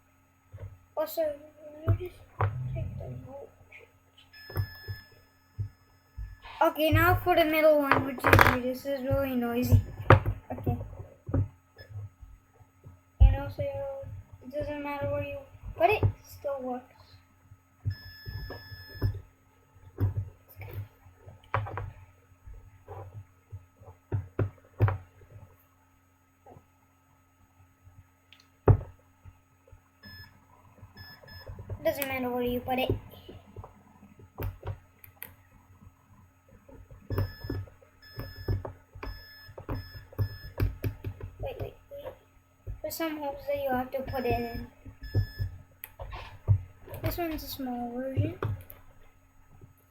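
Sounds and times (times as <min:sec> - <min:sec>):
electronic buzzer beeping: 0:04.3 - 0:06.5, 0:17.8 - 0:19.2, 0:30.0 - 0:30.4, 0:31.0 - 0:32.0, 0:37.1 - 0:40.6, 0:44.1 - 0:45.6
parts clicking and knocking: 0:06.3 - 0:11.5.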